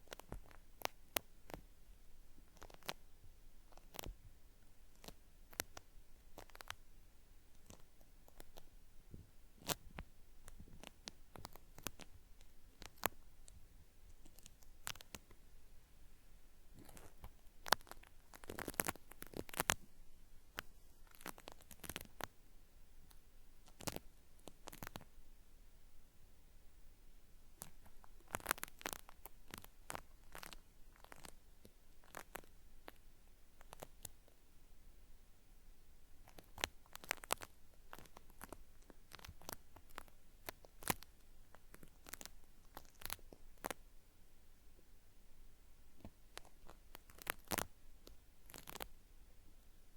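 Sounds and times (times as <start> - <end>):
cotton swab crackling in ear: 0.0 - 1.7, 2.4 - 6.9, 7.5 - 8.8, 9.6 - 15.4, 16.7 - 19.9, 20.5 - 22.4, 23.0 - 25.1, 27.6 - 34.4, 36.2 - 43.8, 46.0 - 49.0
cotton swab scraping microphone: 16.8 - 19.9.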